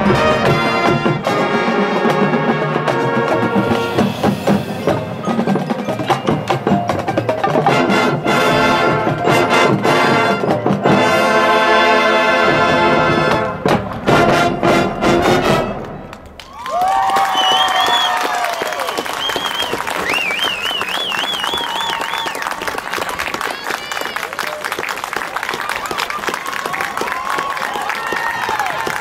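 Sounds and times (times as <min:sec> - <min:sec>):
marching band playing: 0:00.0 - 0:16.6.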